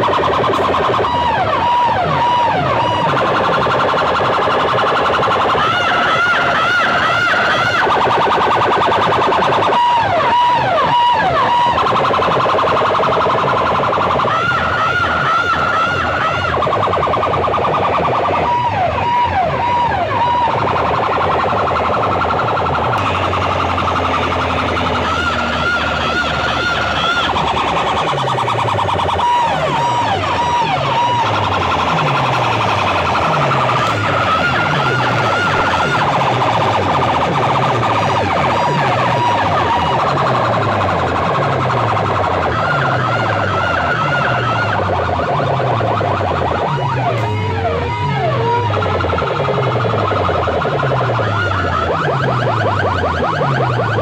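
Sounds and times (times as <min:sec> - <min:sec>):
siren-like warbling effect tones: 0:00.0 - 0:54.0
falling bass sweeps: 0:13.6 - 0:54.0.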